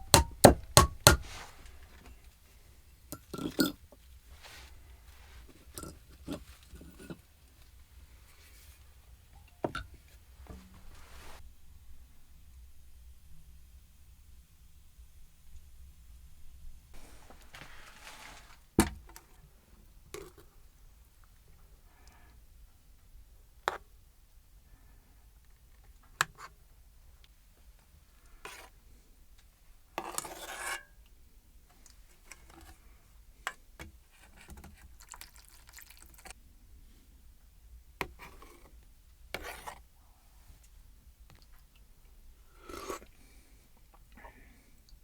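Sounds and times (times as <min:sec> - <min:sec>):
sharp clicks or knocks: 0:00.0 - 0:01.3
rubbing scrape: 0:10.6 - 0:11.4, 0:17.0 - 0:18.6.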